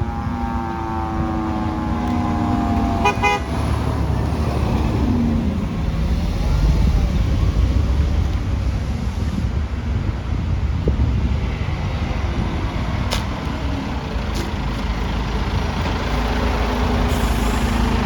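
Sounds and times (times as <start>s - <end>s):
siren winding down: 0.0s - 3.0s
heavy engine rumble: 0.0s - 18.0s
traffic noise: 0.0s - 18.0s
short horn blast: 2.0s - 3.6s.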